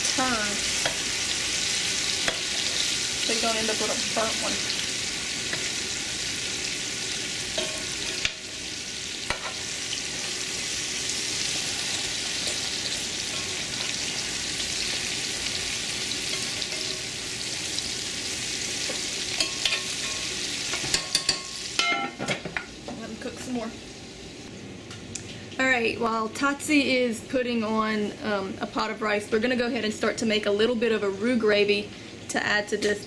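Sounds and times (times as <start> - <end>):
fish balls sizzling in pan: 0.0 - 21.9.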